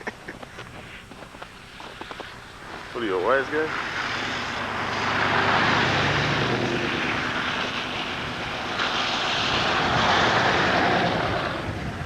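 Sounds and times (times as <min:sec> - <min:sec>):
vehicle passing close by: 0:02.8 - 0:12.0.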